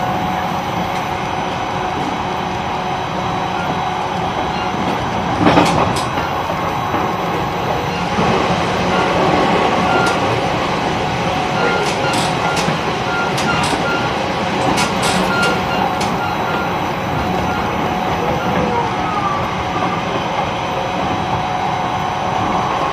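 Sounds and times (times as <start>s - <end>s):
train wheel and rail noise: 0.0s - 22.9s
wheels clicking over rail joints: 11.6s - 18.8s.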